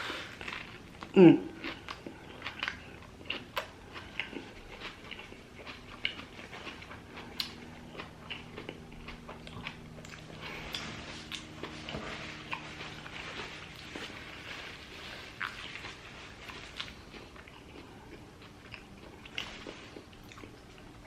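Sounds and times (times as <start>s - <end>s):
person chewing food: 0.0s - 21.0s.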